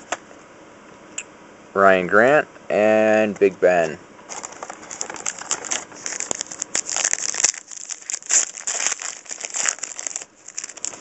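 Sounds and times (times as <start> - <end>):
wrapper crinkling: 4.3 - 11.0.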